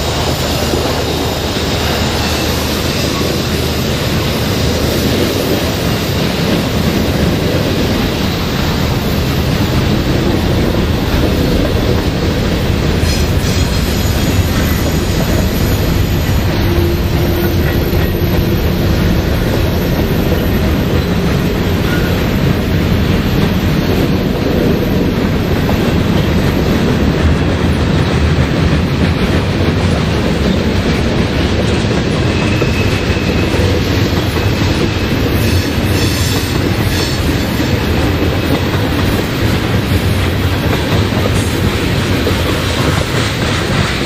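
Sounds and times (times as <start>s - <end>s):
freight train wheels rumbling: 0.0s - 44.0s.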